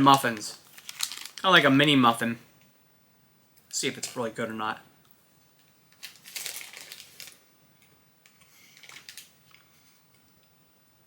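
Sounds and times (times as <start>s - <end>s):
plastic packaging crinkling: 0.2s - 1.7s, 5.6s - 7.5s, 8.6s - 9.6s.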